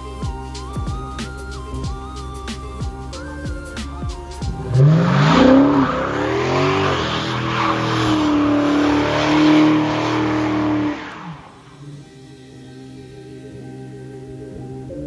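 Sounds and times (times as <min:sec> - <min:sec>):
car engine revving: 0:03.1 - 0:12.2.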